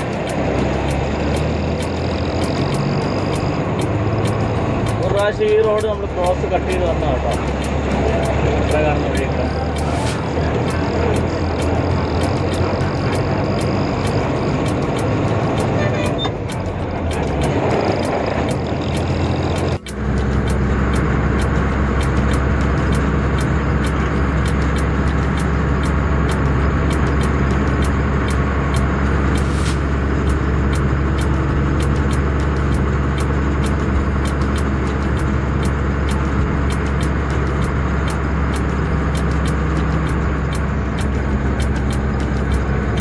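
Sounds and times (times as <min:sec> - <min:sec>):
road noise: 0:00.0 - 0:43.0
truck diesel engine droning: 0:00.0 - 0:43.0.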